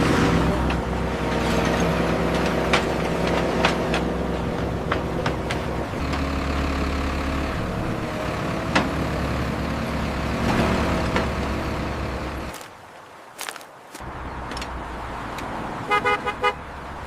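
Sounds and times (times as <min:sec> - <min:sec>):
heavy machinery engine droning: 0:00.0 - 0:12.7.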